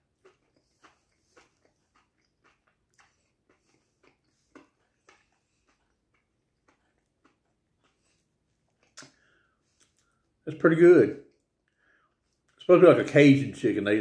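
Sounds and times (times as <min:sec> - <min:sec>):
chewing crispy fried chicken: 0:00.0 - 0:10.4.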